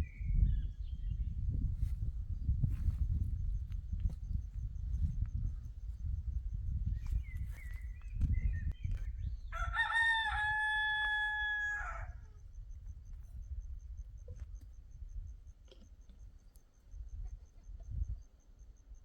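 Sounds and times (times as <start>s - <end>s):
rooster crowing: 9.5s - 12.4s.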